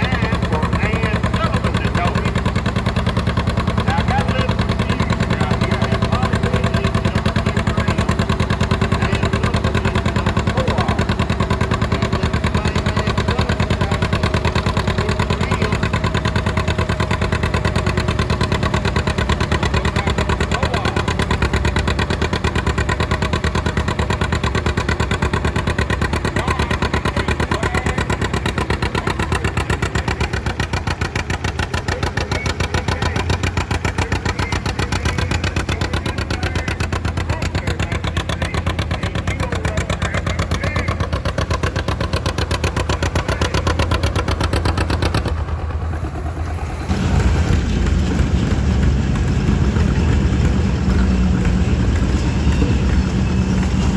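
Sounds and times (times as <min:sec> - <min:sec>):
tractor engine under load: 0:00.0 - 0:53.9.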